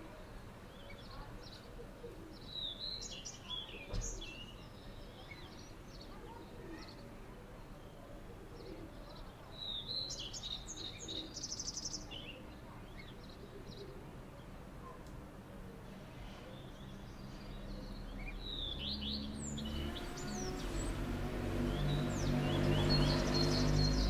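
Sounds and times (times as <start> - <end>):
faint background ambience: 0.0 - 18.5
songbirds chirping and trilling: 0.0 - 24.0.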